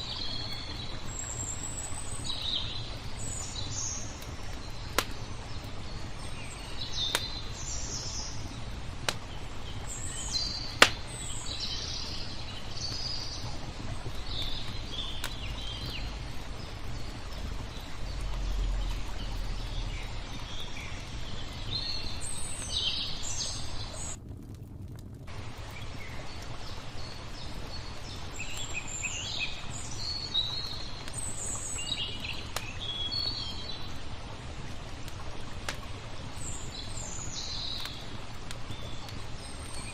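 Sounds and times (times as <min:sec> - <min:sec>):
small birds chirping: 0:00.0 - 0:24.2, 0:25.3 - 0:34.0, 0:35.7 - 0:39.9
low rush of water: 0:00.0 - 0:39.9
crackling wood fire pops: 0:02.2 - 0:39.9.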